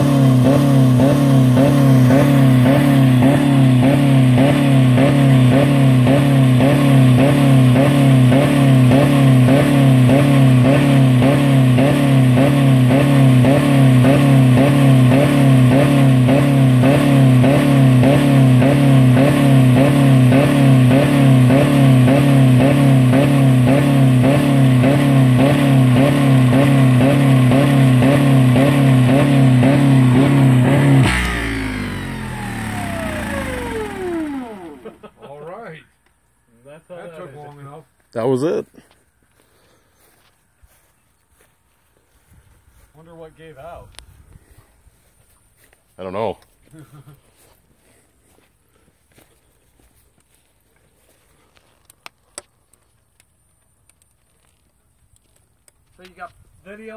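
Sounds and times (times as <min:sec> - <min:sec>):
car engine running hard: 0:00.0 - 0:35.2.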